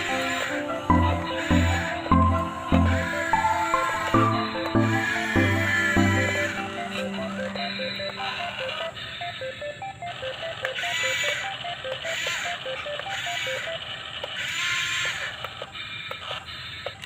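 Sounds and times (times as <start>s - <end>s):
simple tune of short notes: 0.0s - 10.0s.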